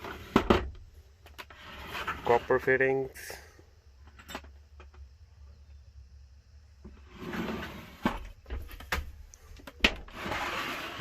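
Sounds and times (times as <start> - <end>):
bins rustling and scraping: 0.0 - 3.4, 6.9 - 11.0.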